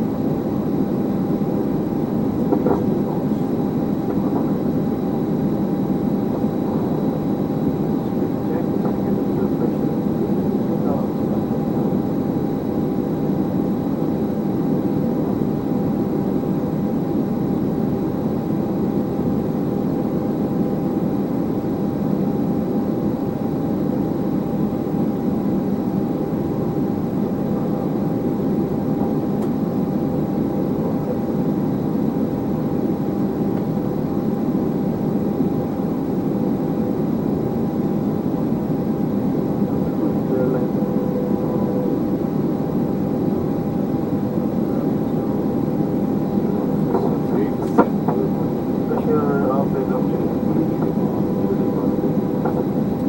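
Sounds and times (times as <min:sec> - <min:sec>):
aircraft cabin air noise: 0:00.0 - 0:53.0
jet engines idling hum: 0:00.0 - 0:53.0
faint whining tones: 0:34.6 - 0:53.0.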